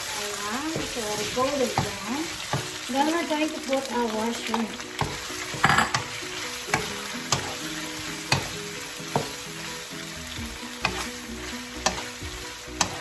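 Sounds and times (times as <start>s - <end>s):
food sizzling in hot oil: 0.0s - 13.0s
utensil clacking against pan: 0.7s - 2.8s, 4.5s - 9.5s, 10.7s - 13.0s.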